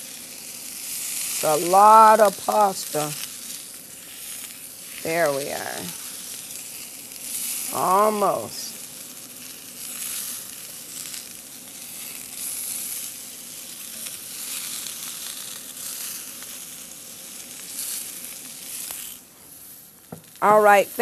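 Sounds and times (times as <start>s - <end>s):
green beans sizzling in oil: 0.0s - 21.0s.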